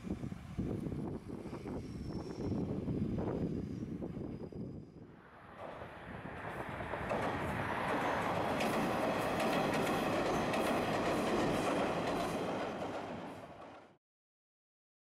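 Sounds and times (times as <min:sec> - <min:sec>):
train wheels rumbling on rails: 0:05.5 - 0:14.0
wheels clicking over rail joints: 0:06.5 - 0:14.0.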